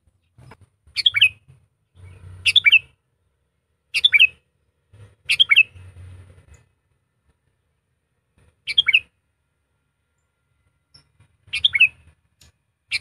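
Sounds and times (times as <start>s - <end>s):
bulbul calling: 0.4s - 3.0s, 3.9s - 4.4s, 5.2s - 6.0s, 8.6s - 9.1s, 10.9s - 13.0s.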